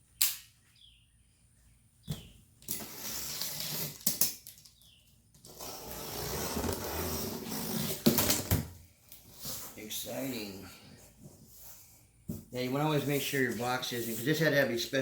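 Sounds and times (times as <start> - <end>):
cardboard box scraping and rustling: 5.5 - 8.2.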